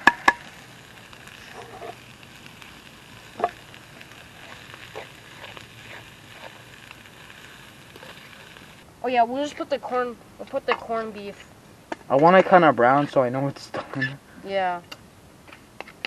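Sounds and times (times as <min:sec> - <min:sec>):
sharp pops and clicks: 0:00.0 - 0:08.8
meat sizzling in metal pan: 0:00.0 - 0:11.3.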